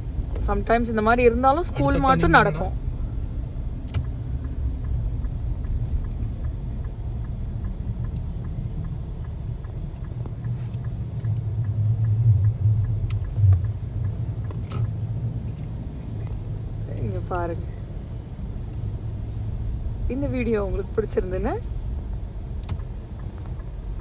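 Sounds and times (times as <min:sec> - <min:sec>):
car rumbling through snow: 0:00.0 - 0:24.0
faint clicks: 0:03.8 - 0:19.1.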